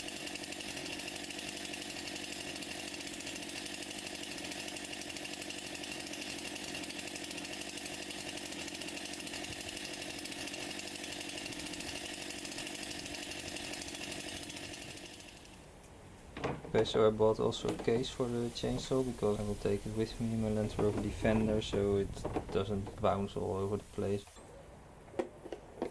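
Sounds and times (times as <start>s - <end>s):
chainsaw running: 0.0s - 15.6s, 17.7s - 24.2s.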